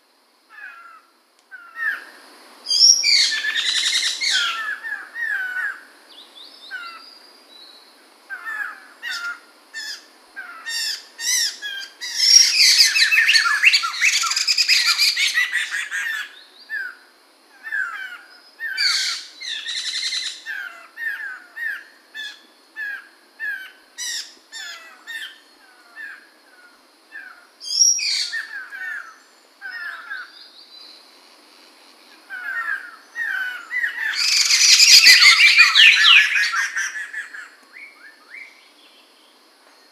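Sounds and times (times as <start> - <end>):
bird chirping and singing: 33.2 - 39.0.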